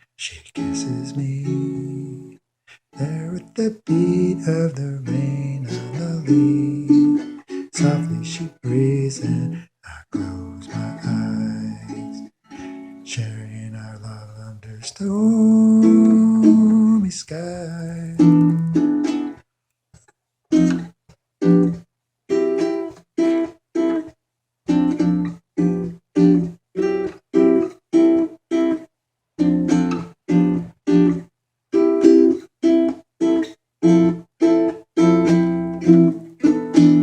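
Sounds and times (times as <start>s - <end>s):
strummed acoustic chords: 0.2s - 2.4s, 3.0s - 19.4s.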